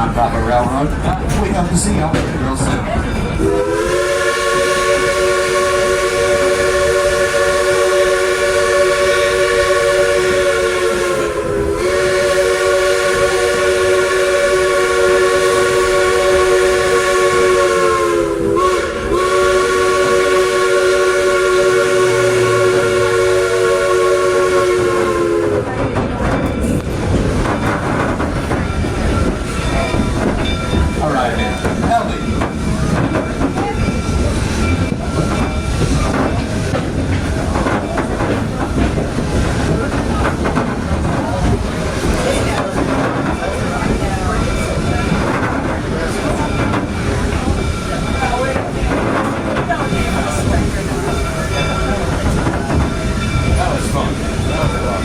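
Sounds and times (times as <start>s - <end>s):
train clatter and rumble: 0.0s - 55.0s
train whistle chord: 3.4s - 25.7s.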